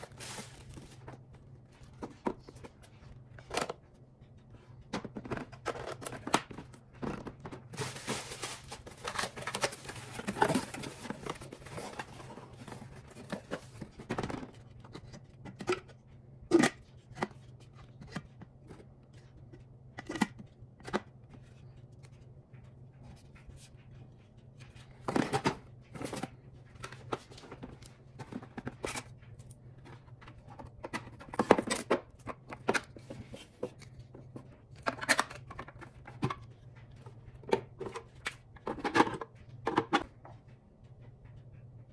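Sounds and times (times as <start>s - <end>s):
rustling: 0.0s - 1.1s, 7.6s - 13.6s
objects clicking and knocking: 0.0s - 21.8s, 24.6s - 41.4s.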